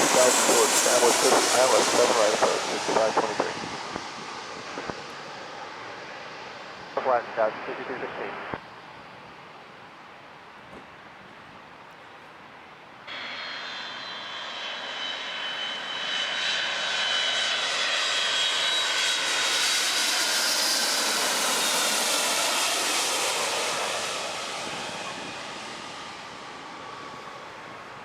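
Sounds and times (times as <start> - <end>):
jet airliner passing overhead: 0.0 - 10.2, 13.0 - 28.0.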